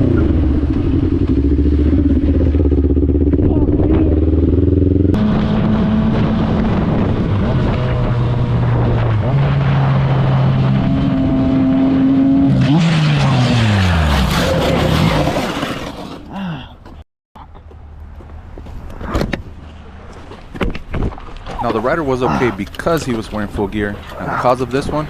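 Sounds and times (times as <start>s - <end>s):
motorcycle engine shifting gears: 0.0s - 17.0s
motorcycle scraping on road: 4.0s - 16.3s.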